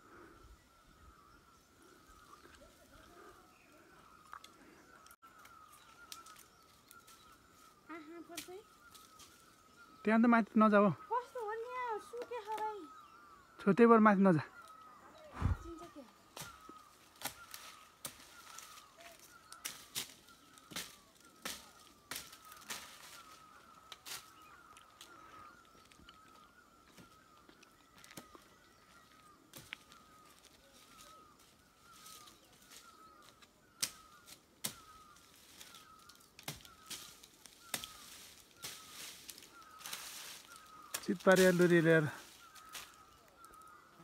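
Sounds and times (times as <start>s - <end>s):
bird chirping: 0.0s - 44.0s
twigs and branches snapping: 4.1s - 7.4s, 8.2s - 9.4s, 12.1s - 12.8s, 16.3s - 28.5s, 29.5s - 31.1s, 31.9s - 43.9s.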